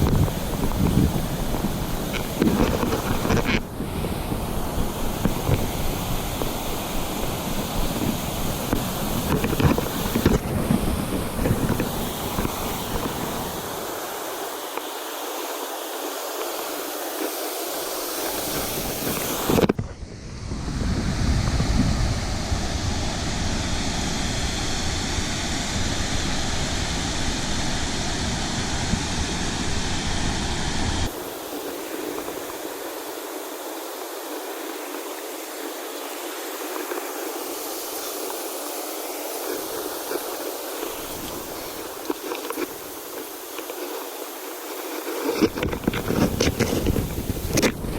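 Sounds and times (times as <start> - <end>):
wind buffeting microphone: 0.0 - 14.1, 18.1 - 31.2, 45.4 - 47.9
river water rushing: 0.0 - 19.8, 24.2 - 47.9.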